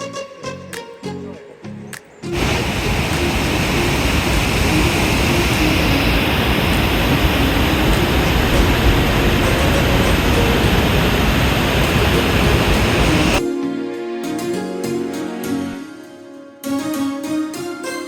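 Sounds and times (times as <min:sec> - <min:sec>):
loud steady rushing noise: 0:02.3 - 0:13.4.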